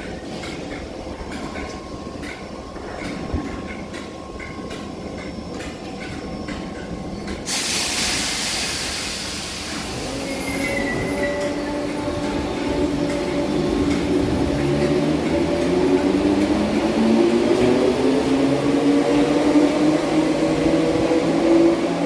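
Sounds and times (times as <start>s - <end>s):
train low rumble: 0.0s - 22.0s
loud air hiss: 7.4s - 11.2s.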